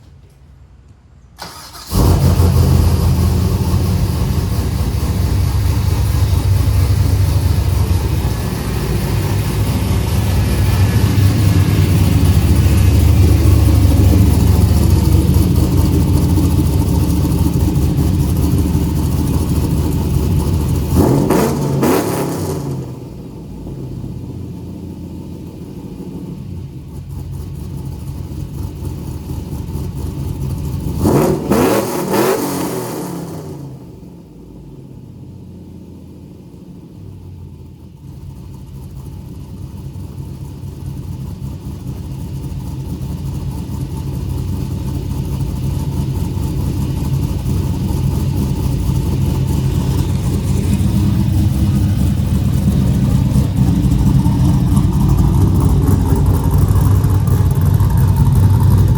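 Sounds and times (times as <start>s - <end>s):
vee eight engine exhaust revving: 1.4s - 24.6s, 30.8s - 33.9s, 44.6s - 58.9s.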